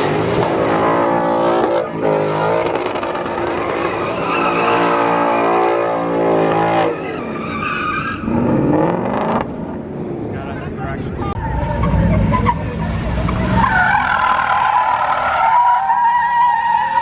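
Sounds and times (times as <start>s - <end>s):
car engine revving hard: 0.0s - 7.2s, 8.2s - 9.6s
tires squealing and skidding: 0.0s - 9.4s, 11.2s - 17.0s.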